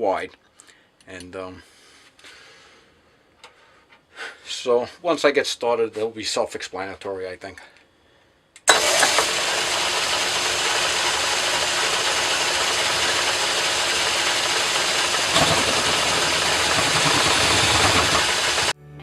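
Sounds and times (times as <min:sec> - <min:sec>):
metal lathe cutting steel: 0:08.7 - 0:18.8.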